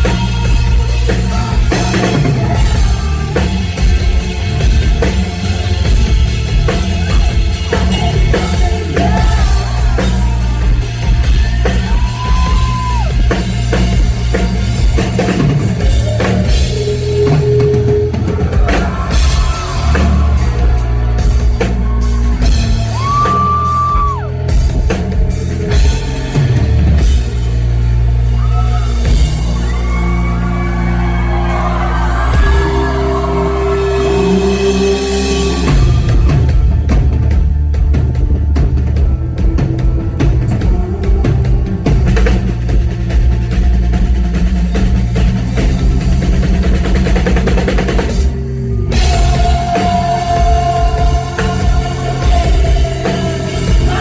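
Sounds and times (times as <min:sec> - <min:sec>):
live rock band playing: 0:00.0 - 0:54.0
singer holding long notes: 0:15.0 - 0:24.6, 0:25.6 - 0:37.3, 0:47.6 - 0:54.0.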